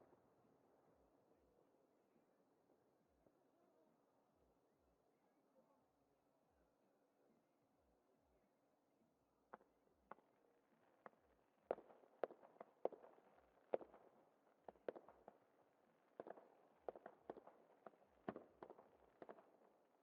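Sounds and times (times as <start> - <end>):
fireworks bursting with echoes: 11.0 - 20.0.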